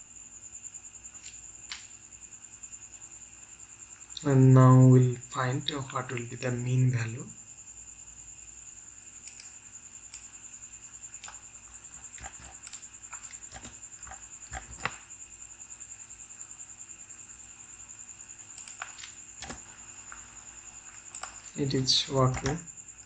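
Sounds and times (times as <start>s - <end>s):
soft clicks: 9.2s - 10.3s, 18.5s - 19.6s, 21.1s - 22.6s.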